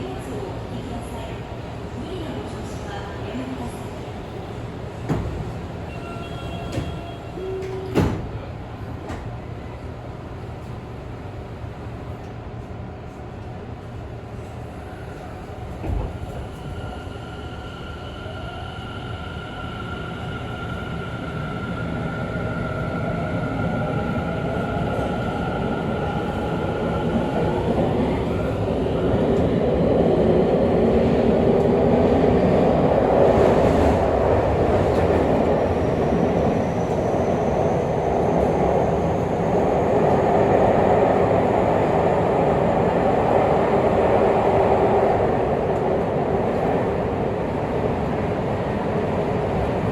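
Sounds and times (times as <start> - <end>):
train wheels on rail: 4.9 - 9.4, 22.5 - 49.9.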